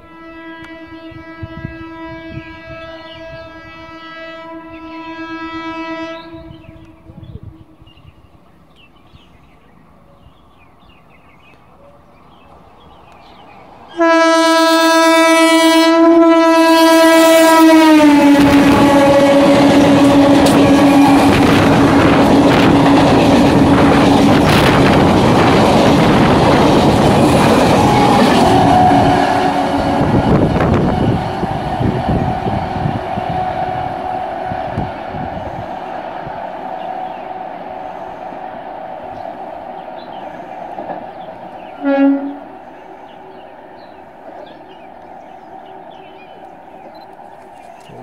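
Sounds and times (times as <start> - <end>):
train horn blast: 0.0 - 7.9, 13.9 - 26.2, 27.2 - 40.6, 41.6 - 43.2.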